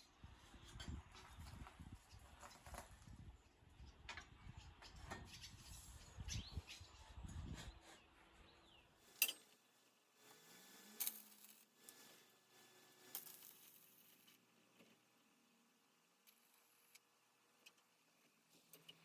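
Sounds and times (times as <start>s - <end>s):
faint outdoor background: 0.0s - 19.0s.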